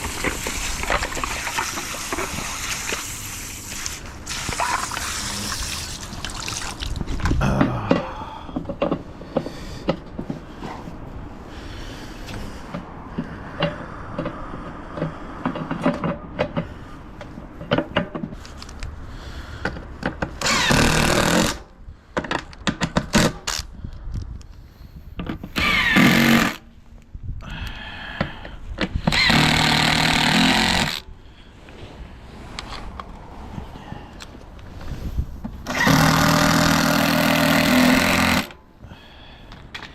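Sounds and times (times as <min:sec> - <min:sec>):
knocks and clatter of parts: 0:12.7 - 0:18.8
power screwdriver whirring: 0:20.4 - 0:21.6, 0:25.5 - 0:26.6, 0:29.1 - 0:31.0, 0:35.6 - 0:38.6.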